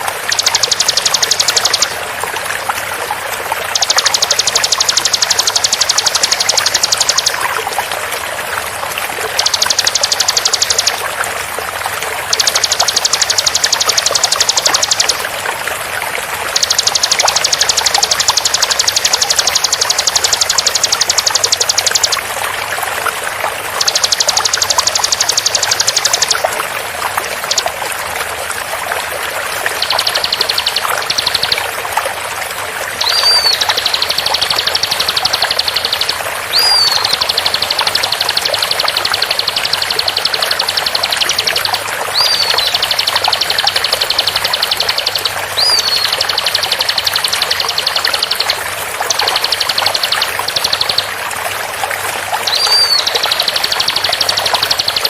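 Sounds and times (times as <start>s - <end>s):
flowing water: 0.0s - 55.0s
bird trilling rapidly: 0.2s - 2.0s, 3.7s - 7.5s, 9.3s - 11.0s, 12.3s - 15.3s, 16.5s - 22.3s, 23.7s - 26.5s, 33.0s - 48.5s, 52.4s - 55.0s.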